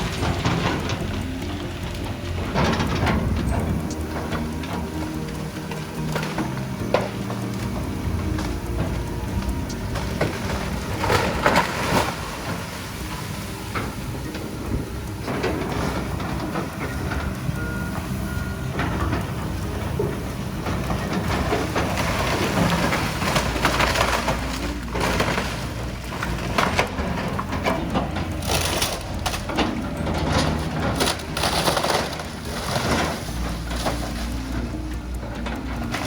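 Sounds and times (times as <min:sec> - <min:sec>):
excavator engine running: 0:00.0 - 0:36.0
roofing material crashing: 0:20.8 - 0:36.0.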